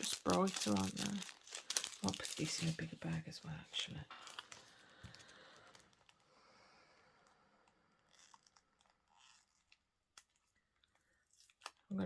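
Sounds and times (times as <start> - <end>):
plastic bags crinkling: 0.0 - 6.4.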